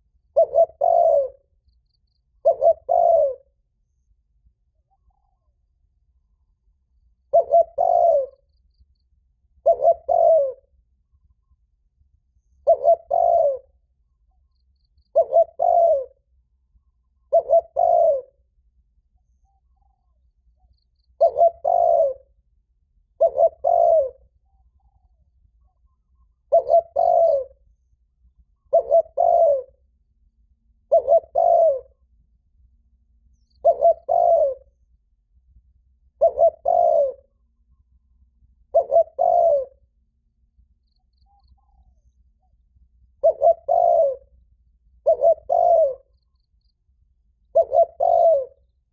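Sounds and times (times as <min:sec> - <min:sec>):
dove cooing: 0:00.0 - 0:01.5, 0:02.4 - 0:03.6, 0:07.2 - 0:08.5, 0:09.6 - 0:10.8, 0:12.6 - 0:13.8, 0:15.1 - 0:16.3, 0:17.1 - 0:18.4, 0:21.1 - 0:22.4, 0:23.2 - 0:27.7, 0:28.6 - 0:29.8, 0:30.8 - 0:32.1, 0:33.5 - 0:34.7, 0:36.1 - 0:37.4, 0:38.6 - 0:39.9, 0:41.2 - 0:44.4, 0:45.0 - 0:46.5, 0:47.4 - 0:48.7.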